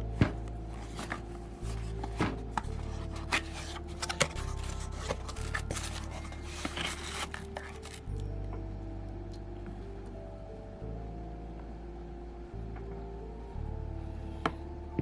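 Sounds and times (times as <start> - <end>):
low background music: 0.0 - 15.0
light being handled: 0.8 - 8.3.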